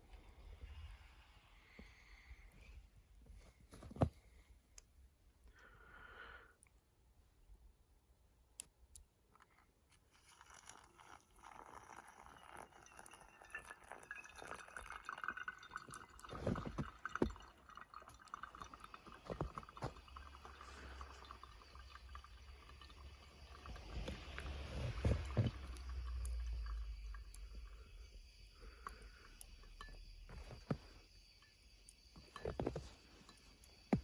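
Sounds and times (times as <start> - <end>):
small clinks and knocks: 9.2 - 34.0
water pouring and dripping: 9.4 - 34.0.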